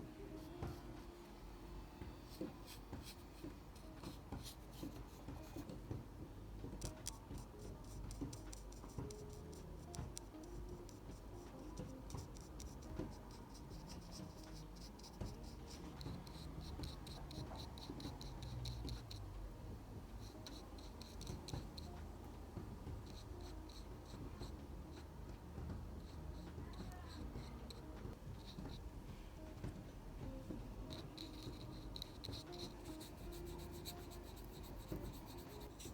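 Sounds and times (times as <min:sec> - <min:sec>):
pencil scratching on paper: 0:02.2 - 0:05.8, 0:06.8 - 0:19.3, 0:20.2 - 0:22.0, 0:23.0 - 0:24.6, 0:26.0 - 0:28.8, 0:30.8 - 0:35.9.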